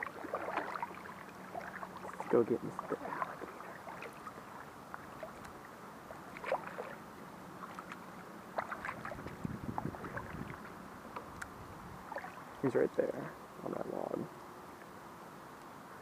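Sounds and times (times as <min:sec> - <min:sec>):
paddle splashes and drips: 0:00.0 - 0:11.4, 0:12.0 - 0:12.6.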